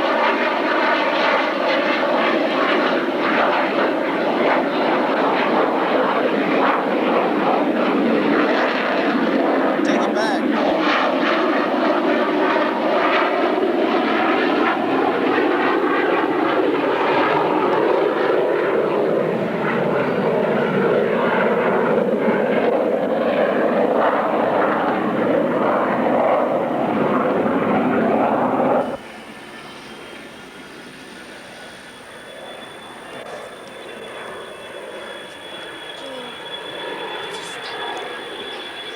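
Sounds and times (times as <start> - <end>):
airplane flying over: 0.0 - 38.9
thin high whine: 28.8 - 38.9.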